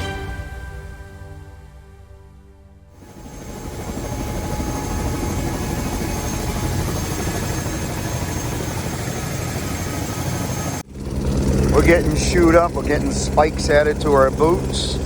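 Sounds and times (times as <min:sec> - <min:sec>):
helicopter engine and rotor: 0:03.0 - 0:15.0.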